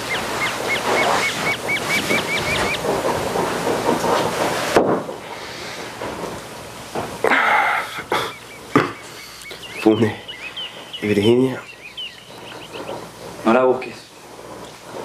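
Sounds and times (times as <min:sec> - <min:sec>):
bird calling repeated notes: 0:00.0 - 0:03.0, 0:08.2 - 0:13.2
noisy rustle: 0:00.0 - 0:15.0.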